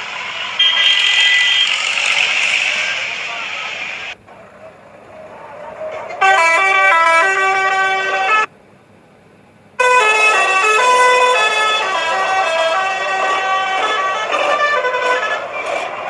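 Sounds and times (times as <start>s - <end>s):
vehicle musical horn tune: 0.5s - 1.8s, 6.2s - 8.5s, 9.8s - 15.8s.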